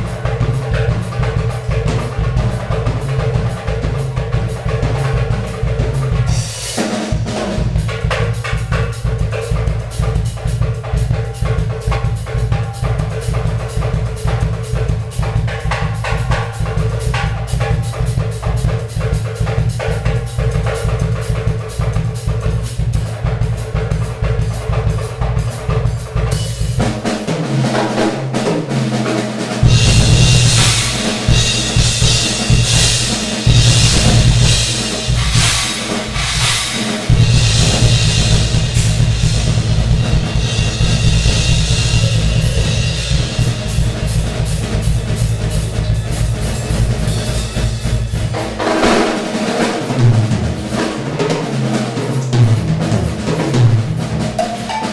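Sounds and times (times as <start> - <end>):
fast bass drum strokes: 0.0 - 54.9
tom drum fill: 0.0 - 54.9
snare drum: 26.8 - 45.0, 46.4 - 54.9
crashing cymbals: 29.6 - 50.0.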